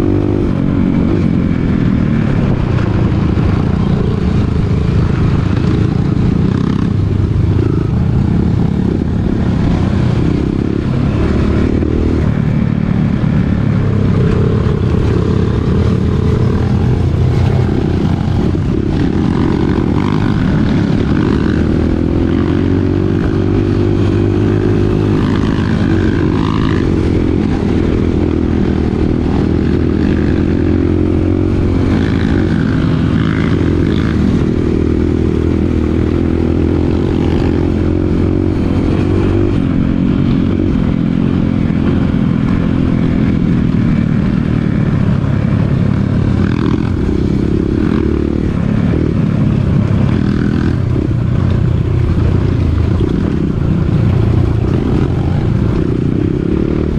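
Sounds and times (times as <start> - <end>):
dirt bike engine running: 0.0 - 56.9.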